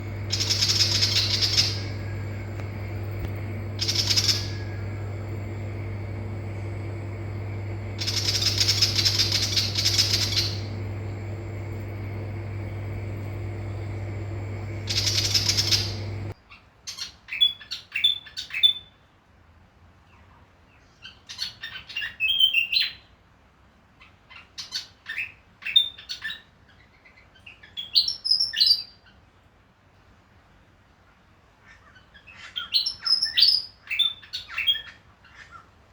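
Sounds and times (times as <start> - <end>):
bird harsh chatter: 0.0 - 5.6, 7.7 - 12.0, 12.7 - 16.3
steady low hum: 0.0 - 16.4
chirpy birdsong phrases: 0.0 - 19.0.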